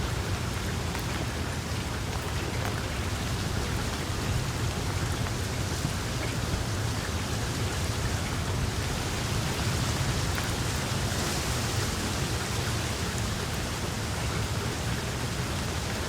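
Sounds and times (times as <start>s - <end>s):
wood fire hissing and crackling: 0.0s - 16.0s.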